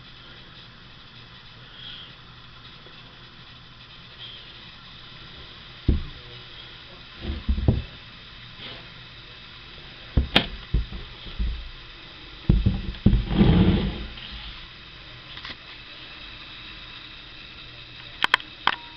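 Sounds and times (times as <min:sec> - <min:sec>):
object bumping and knocking: 0:05.9 - 0:06.2, 0:07.2 - 0:08.0, 0:10.2 - 0:11.7, 0:12.5 - 0:14.2
rustling scrape: 0:13.0 - 0:14.6.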